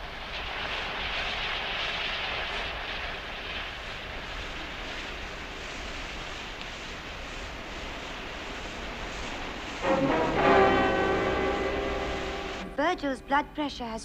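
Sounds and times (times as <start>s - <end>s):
gas cutting torch hissing: 0.0s - 12.7s.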